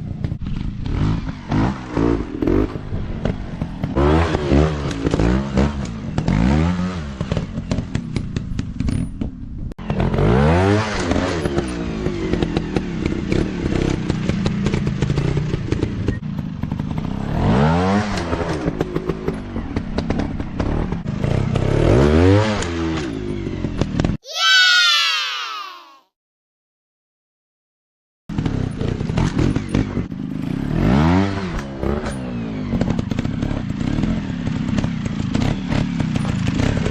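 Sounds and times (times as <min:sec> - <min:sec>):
dirt bike engine revving: 0:00.8 - 0:07.8, 0:20.0 - 0:23.1, 0:28.4 - 0:36.9.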